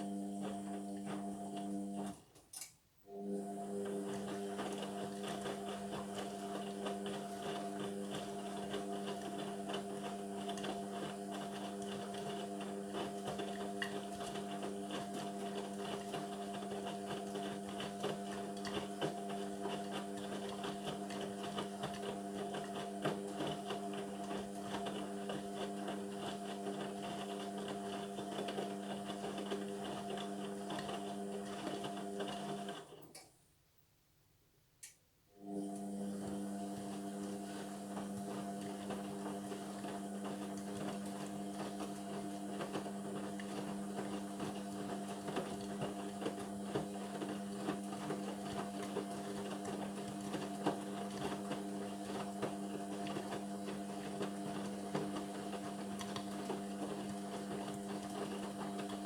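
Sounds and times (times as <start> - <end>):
washing machine motor hum: 0.0 - 2.4, 3.1 - 33.1, 35.4 - 59.0.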